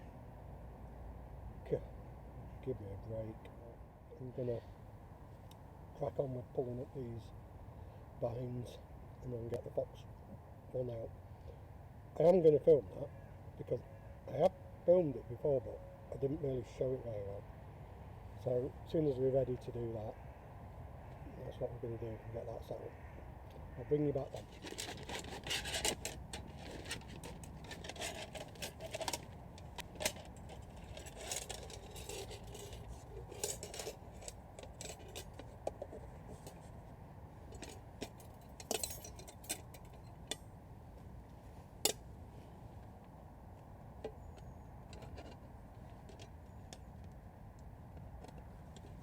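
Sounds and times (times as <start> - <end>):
camping gear clicking and rattling: 24.3 - 36.8, 37.4 - 40.6, 44.1 - 47.0, 47.9 - 49.0.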